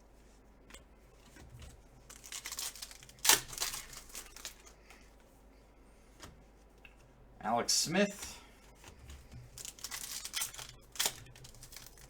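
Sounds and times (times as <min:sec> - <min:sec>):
foil wrapper tearing and crinkling: 0:02.1 - 0:04.7, 0:09.6 - 0:12.0.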